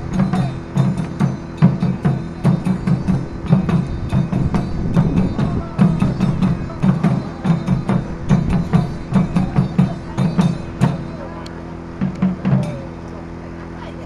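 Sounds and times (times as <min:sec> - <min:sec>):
taiko drums: 0:00.0 - 0:13.1.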